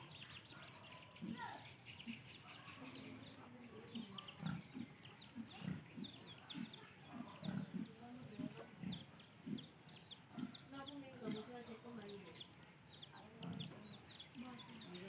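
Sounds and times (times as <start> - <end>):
high bird chirps: 0.0 - 15.0
piglets grunting: 1.1 - 11.5, 13.3 - 13.8.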